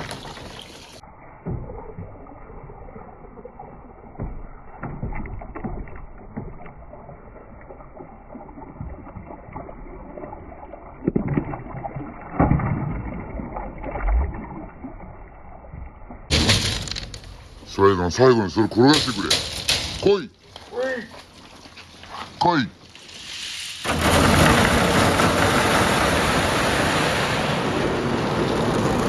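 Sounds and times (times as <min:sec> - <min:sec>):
marbles rolling and knocking: 0:16.3 - 0:17.9, 0:23.0 - 0:26.8
water sloshing: 0:16.3 - 0:27.0.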